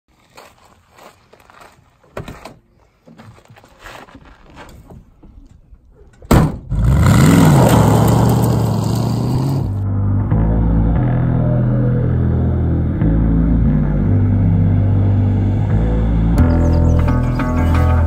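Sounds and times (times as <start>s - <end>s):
footsteps on gravel: 0.1s - 5.2s
sharp thud: 6.3s - 6.8s
car engine revving: 6.6s - 17.1s.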